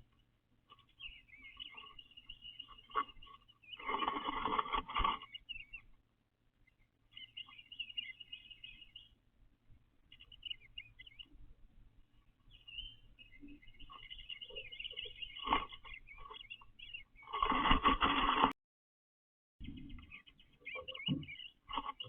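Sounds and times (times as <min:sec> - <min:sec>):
loud rustle: 0:17.3 - 0:18.5.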